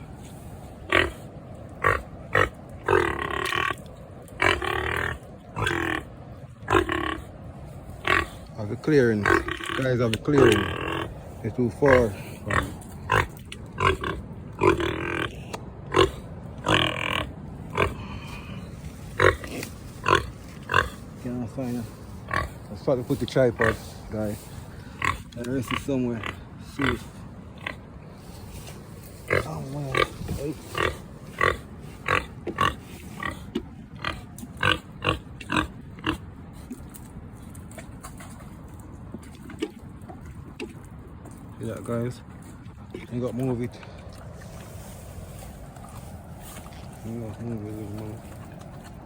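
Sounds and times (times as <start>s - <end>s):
pig grunting: 0.8s - 28.0s, 29.2s - 36.3s.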